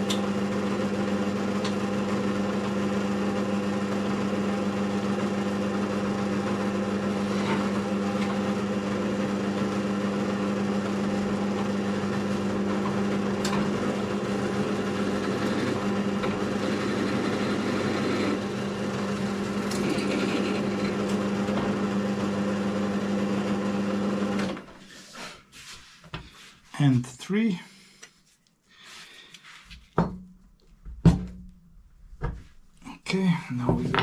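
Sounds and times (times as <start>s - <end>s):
drill press motor hum: 0.0s - 24.6s.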